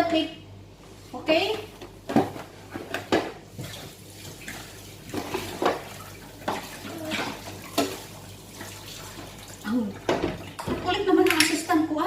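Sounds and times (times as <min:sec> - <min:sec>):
dishes clinking: 0:10.1 - 0:11.7.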